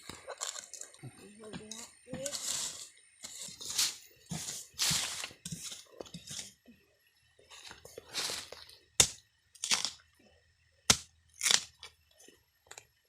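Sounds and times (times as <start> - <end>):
bamboo stalks and leaves rustling: 2.2 - 6.5, 7.5 - 10.0
bamboo snapping cracks: 9.0 - 10.0, 10.9 - 11.9.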